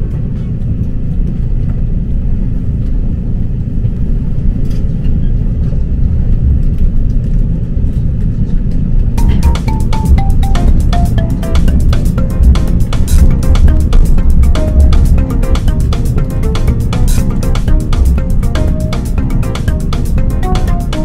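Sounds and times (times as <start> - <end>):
train rumbling on track: 0.0 - 9.5, 10.2 - 21.0
music: 9.2 - 21.0.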